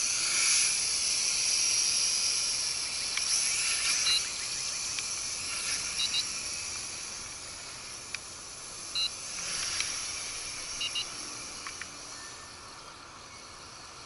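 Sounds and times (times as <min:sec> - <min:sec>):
quadcopter propellers buzzing: 0:00.0 - 0:14.0
short high beeps: 0:06.0 - 0:06.3, 0:10.8 - 0:11.1.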